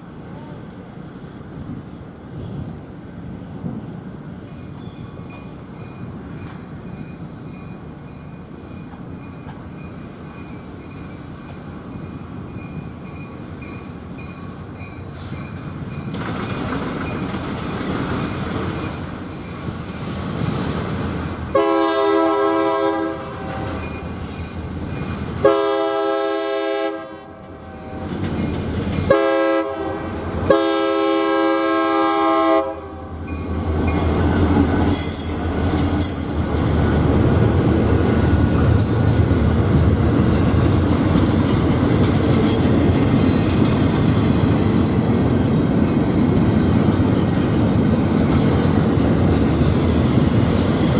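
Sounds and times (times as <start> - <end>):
train rumble: 0.0 - 50.9
train wheel clatter: 3.4 - 21.6, 28.1 - 29.2, 33.2 - 50.9
locomotive air horn blasts: 21.5 - 23.8, 25.4 - 28.1, 29.1 - 33.2.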